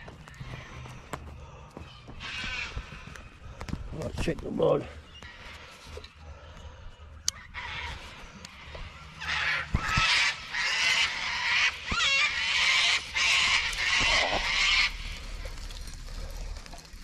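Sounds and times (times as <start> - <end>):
bird raspy screeches: 0.0 - 3.4, 7.3 - 16.4.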